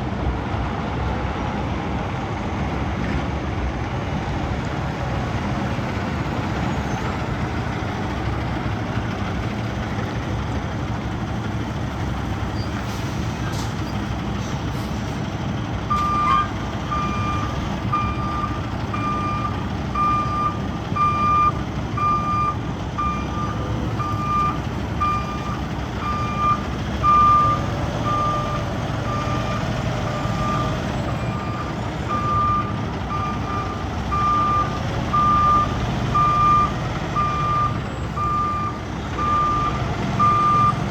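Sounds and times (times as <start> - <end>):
truck engine running: 0.0 - 40.9
reversing alarm beeping: 15.9 - 40.8.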